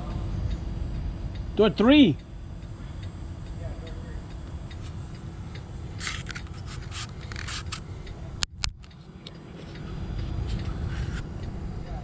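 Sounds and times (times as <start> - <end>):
low steady rumble: 0.0 - 12.0
sharp clicks: 4.3 - 9.4.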